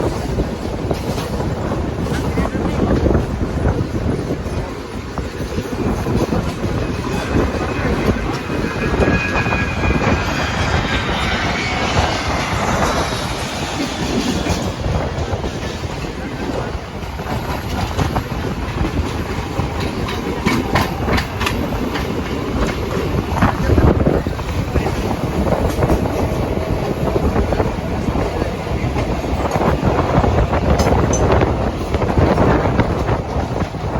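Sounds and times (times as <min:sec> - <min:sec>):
clickety-clack of rail joints: 0:00.0 - 0:33.9
train wheels rumbling on rail: 0:00.0 - 0:33.9
sharp clatter: 0:04.5 - 0:22.0
high wheel squeal: 0:05.4 - 0:16.4.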